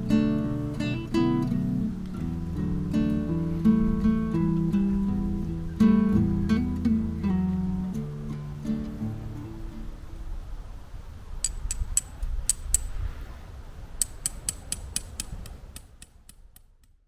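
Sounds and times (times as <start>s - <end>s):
acoustic guitar music: 0.0s - 10.4s
sharp clicks: 11.4s - 13.0s, 14.0s - 17.0s.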